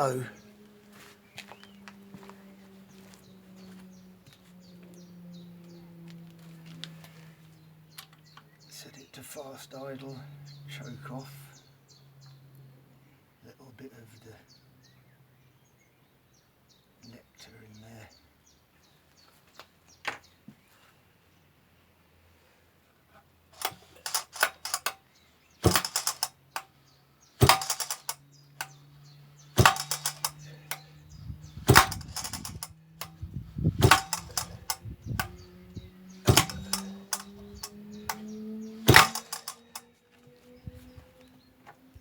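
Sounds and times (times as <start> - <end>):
chainsaw recoil starter pulls: 23.6 - 25.0, 25.6 - 26.6, 27.4 - 28.8, 29.6 - 30.9, 31.6 - 33.2, 33.8 - 35.5, 36.2 - 39.8.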